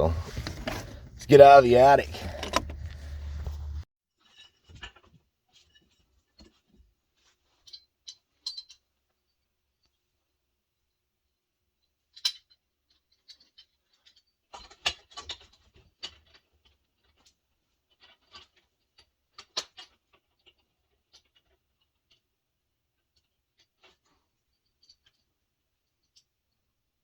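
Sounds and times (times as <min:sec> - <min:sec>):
objects being handled: 0:00.0 - 0:03.8.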